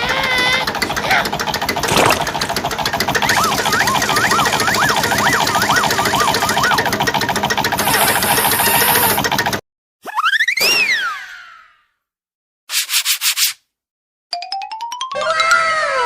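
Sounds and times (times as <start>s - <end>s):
tractor engine chugging: 0.0s - 9.6s.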